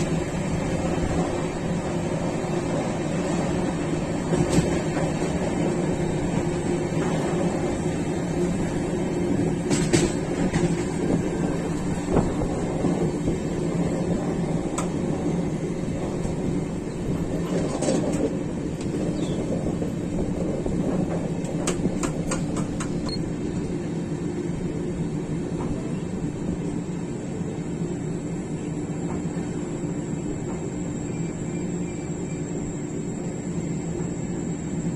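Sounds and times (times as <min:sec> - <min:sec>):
sharp clicks of train wheels: 0:00.0 - 0:13.3, 0:14.1 - 0:15.3, 0:15.9 - 0:23.7
train rumble and hum: 0:00.0 - 0:34.9.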